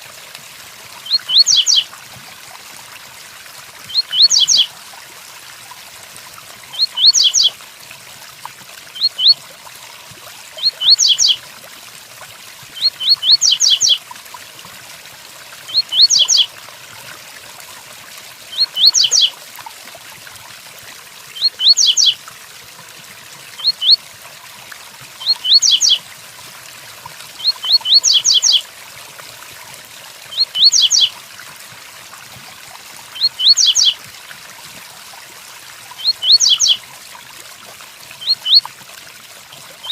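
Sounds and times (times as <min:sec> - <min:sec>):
bird singing high notes: 0:21.4 - 0:22.2.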